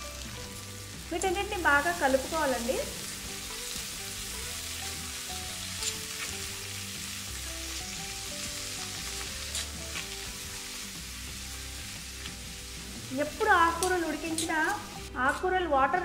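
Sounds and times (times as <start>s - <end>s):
soft background music: 0.0s - 16.0s
vegetables sizzling in hot oil: 0.0s - 16.0s
metal utensil clicking on pan: 13.7s - 15.4s.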